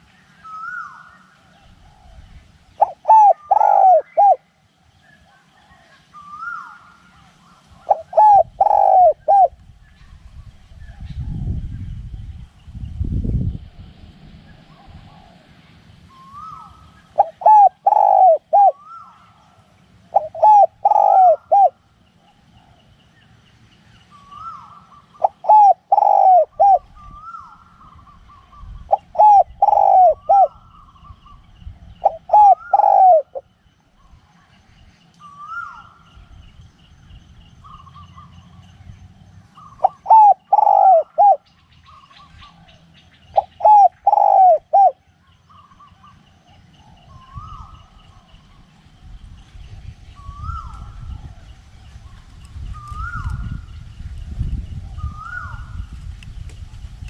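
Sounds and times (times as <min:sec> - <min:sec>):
dove cooing: 0:02.8 - 0:04.5, 0:05.2 - 0:09.6, 0:16.2 - 0:22.8, 0:24.2 - 0:31.4, 0:32.0 - 0:33.5, 0:39.6 - 0:46.2.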